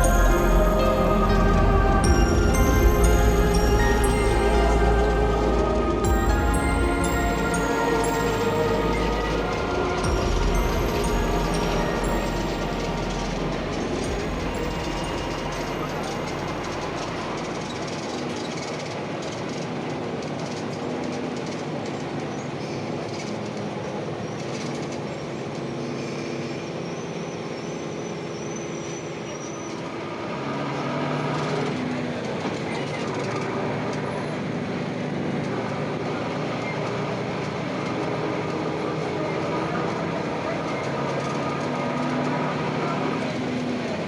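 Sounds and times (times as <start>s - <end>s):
road rumble: 0.0s - 26.8s
bus diesel engine: 0.0s - 44.0s.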